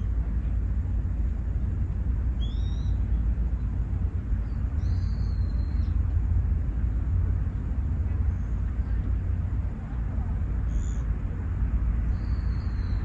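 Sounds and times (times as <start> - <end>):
steady low rumble: 0.0 - 13.0
bird calling: 2.4 - 3.2, 4.4 - 6.0, 10.6 - 11.1.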